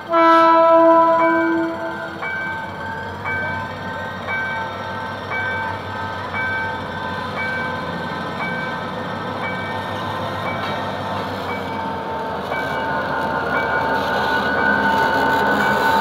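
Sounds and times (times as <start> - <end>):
two-tone crossing warning signal: 0.0 - 10.8
diesel locomotive running: 0.0 - 16.0.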